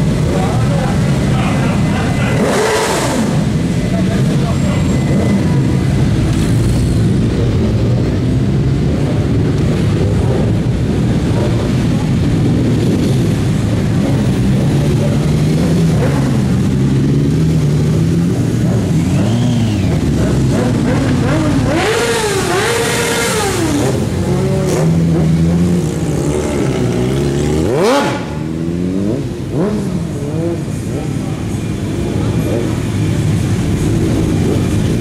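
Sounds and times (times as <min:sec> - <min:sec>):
motorcycle engines revving: 0:00.0 - 0:35.0.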